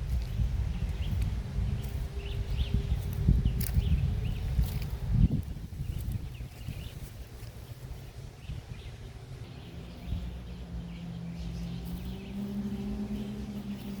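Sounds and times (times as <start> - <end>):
steady low hum rising in pitch: 8.0 - 14.0.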